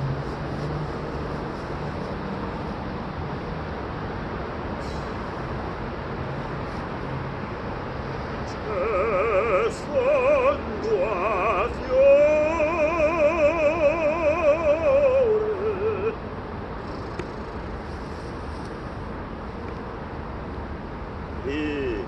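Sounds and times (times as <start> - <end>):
person singing operatic vocal exercises: 8.4 - 16.2, 21.4 - 22.0.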